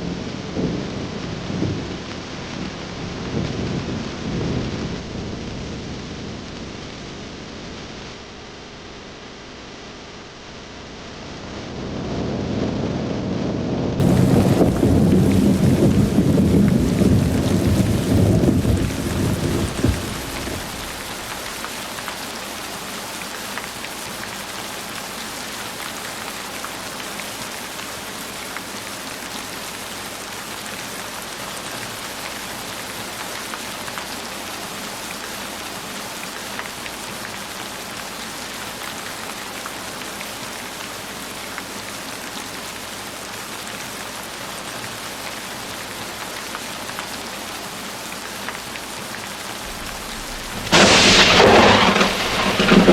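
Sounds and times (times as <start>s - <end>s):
heavy rain falling: 0.0s - 8.4s, 14.0s - 52.9s
low thunder rumble: 13.6s - 21.6s, 49.6s - 52.9s
raindrop ticks: 14.0s - 22.4s.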